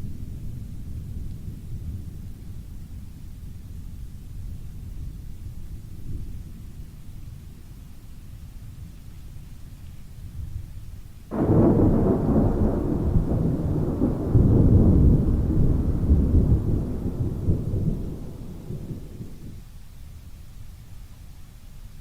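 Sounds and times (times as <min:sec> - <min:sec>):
steady rain: 0:00.0 - 0:22.0
thunder crack and rumble: 0:11.3 - 0:19.6.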